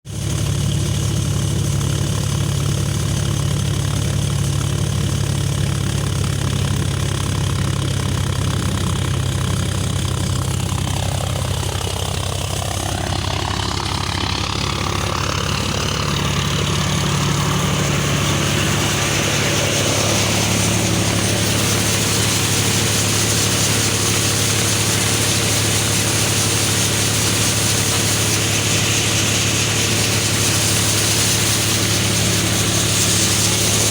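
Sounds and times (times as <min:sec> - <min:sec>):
tractor diesel engine running: 0:00.0 - 0:33.9
thresher rushing noise: 0:08.2 - 0:33.9.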